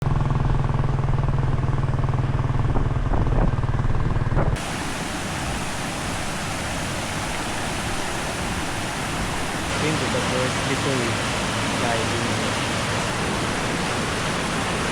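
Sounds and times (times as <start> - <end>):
vehicle engine humming: 0.0 - 14.9
waterfall rushing: 4.6 - 14.9.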